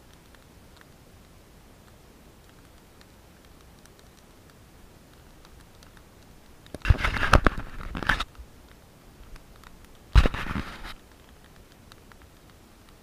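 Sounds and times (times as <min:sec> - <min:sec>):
sharp clicks: 0:02.4 - 0:13.0
crinkling scraping handling noise: 0:06.8 - 0:08.4, 0:09.6 - 0:11.0.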